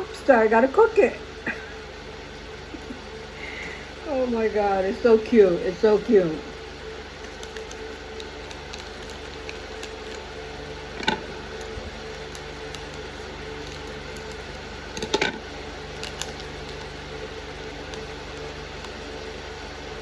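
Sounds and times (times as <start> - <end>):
steady low hum: 0.0 - 20.0
plastic packaging crinkles and clicks: 7.2 - 19.3.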